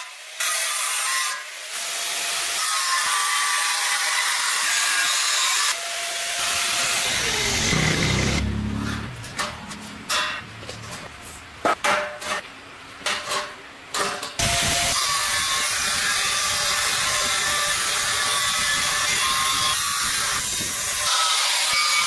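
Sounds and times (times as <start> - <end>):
power tool running: 6.2 - 9.5.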